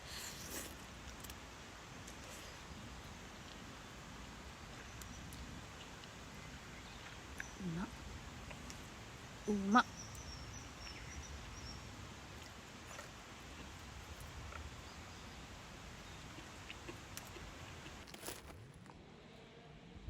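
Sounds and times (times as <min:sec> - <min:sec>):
steady background hiss: 0:00.0 - 0:18.4
person chewing: 0:12.4 - 0:14.9, 0:16.0 - 0:18.6.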